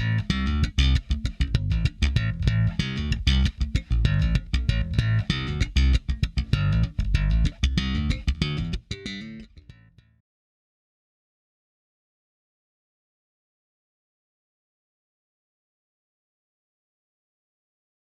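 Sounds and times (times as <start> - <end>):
electric bass guitar notes: 0.0 - 10.2.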